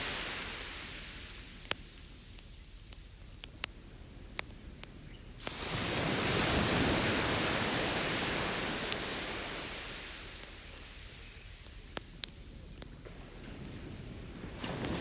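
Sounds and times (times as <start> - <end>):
campfire crackling: 0.0 - 15.0
ocean wave breaking: 5.4 - 10.4, 14.4 - 15.0.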